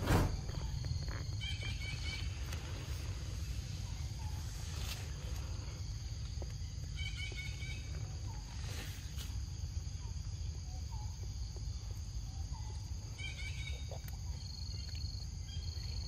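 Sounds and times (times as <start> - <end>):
low steady rumble: 0.0 - 16.0
songbird high chirps: 0.5 - 2.8, 6.2 - 8.9, 9.8 - 16.0.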